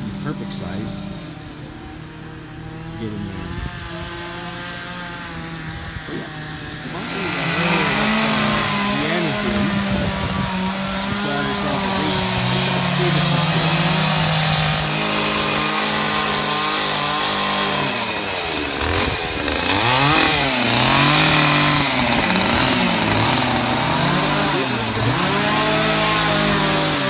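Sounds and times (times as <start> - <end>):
second chainsaw running: 0.0 - 27.0
chainsaw bogging into wood: 6.1 - 27.0.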